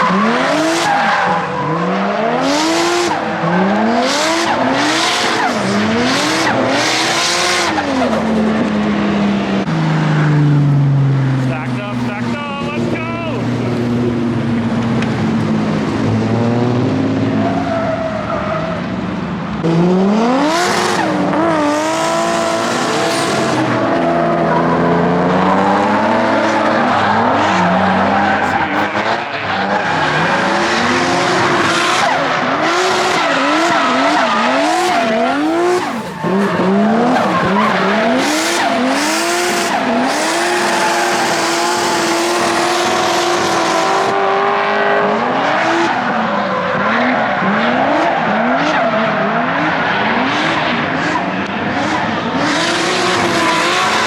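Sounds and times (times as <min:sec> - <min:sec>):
car engines revving: 0:00.0 - 0:54.0
tyres screeching: 0:24.5 - 0:44.1.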